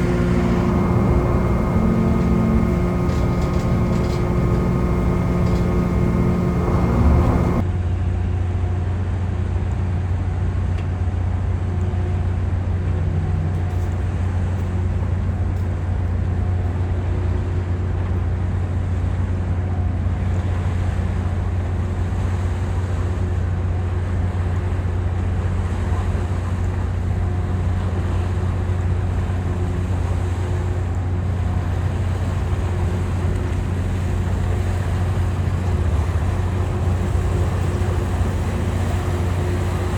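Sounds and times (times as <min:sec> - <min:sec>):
ferry engines droning: 0:00.0 - 0:07.6, 0:31.6 - 0:39.9
steady pitched tone: 0:00.0 - 0:07.6.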